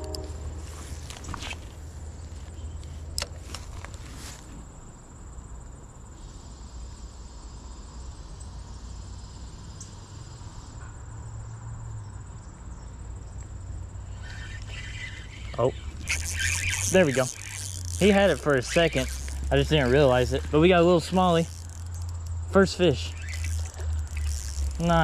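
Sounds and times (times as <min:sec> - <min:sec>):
highway traffic rumble: 0:00.0 - 0:06.3, 0:10.4 - 0:25.0
high-pitched insect chirring: 0:13.6 - 0:25.0.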